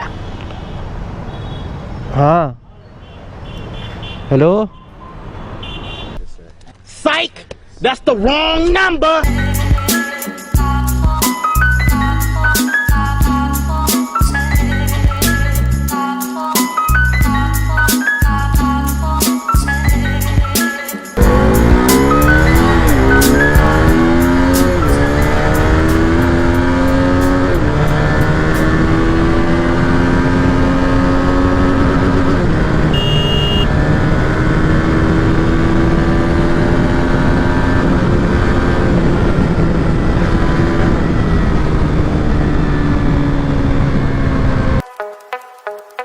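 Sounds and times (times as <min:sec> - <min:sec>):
motorcycle engine accelerating: 0:21.2 - 0:44.8
short high beep: 0:32.9 - 0:33.7.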